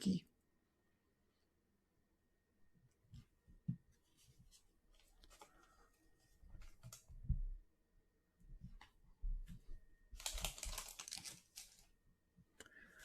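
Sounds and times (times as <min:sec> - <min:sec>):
foil wrapper crinkle: 0:10.2 - 0:11.9.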